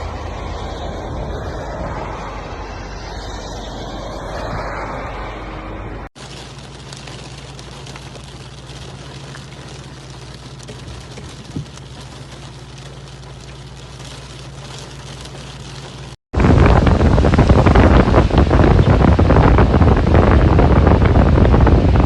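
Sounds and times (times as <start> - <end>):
wind on microphone: 0.0 - 6.1, 16.4 - 22.0
downpour rushing: 0.0 - 22.0
rain pattering: 6.1 - 22.0.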